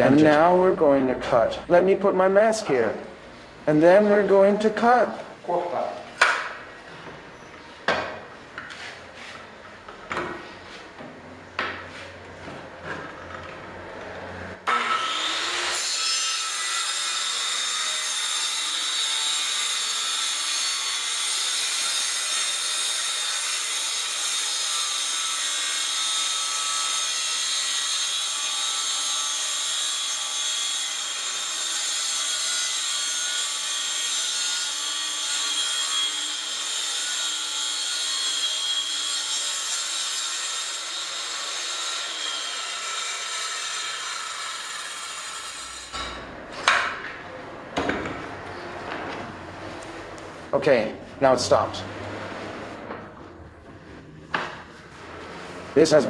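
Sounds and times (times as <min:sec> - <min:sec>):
circular saw cutting: 0:14.2 - 0:46.2.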